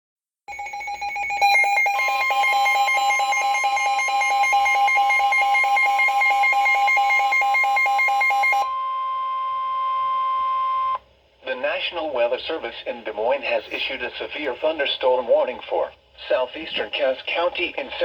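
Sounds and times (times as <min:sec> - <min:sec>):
harsh electronic beeping: 0:00.5 - 0:08.8
steady alarm tone: 0:00.5 - 0:11.0.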